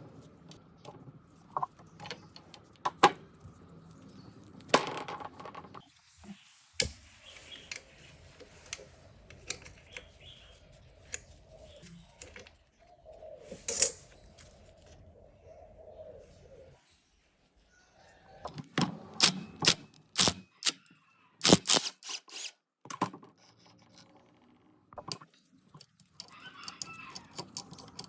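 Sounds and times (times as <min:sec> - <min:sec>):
metal tools clicking and clinking: 0:13.6 - 0:14.0, 0:18.5 - 0:20.8, 0:21.4 - 0:24.2, 0:25.0 - 0:28.0
metal scraping: 0:21.4 - 0:22.5.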